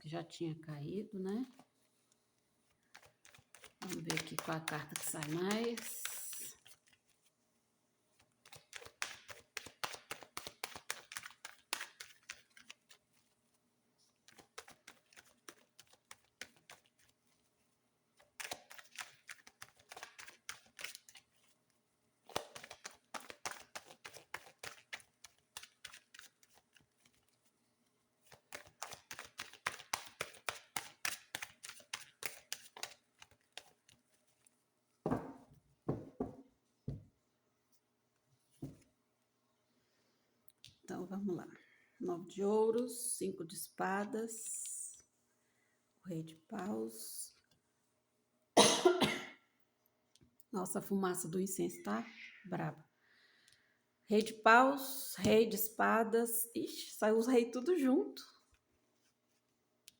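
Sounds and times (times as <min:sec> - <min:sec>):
cards being shuffled: 0:02.6 - 0:07.2, 0:08.1 - 0:17.6, 0:18.2 - 0:21.6, 0:22.2 - 0:27.6, 0:28.2 - 0:34.5.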